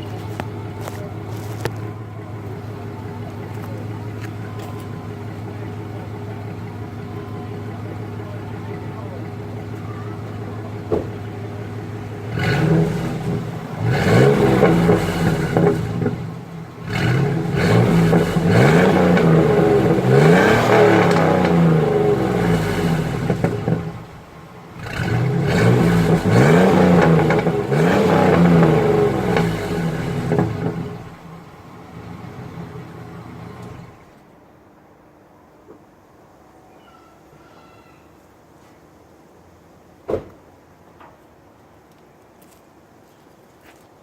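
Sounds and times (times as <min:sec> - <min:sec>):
engine revving and idling: 0:00.0 - 0:34.2.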